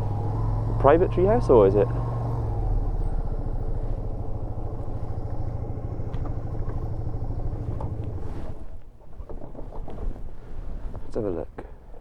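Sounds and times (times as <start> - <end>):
motorcycle engine idling: 0.0 - 8.5.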